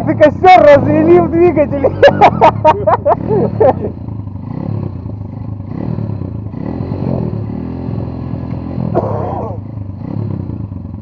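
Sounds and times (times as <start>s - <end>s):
riders joking: 0.0s - 4.1s, 9.0s - 9.7s
two-stroke motorcycle engine revving: 0.0s - 11.0s.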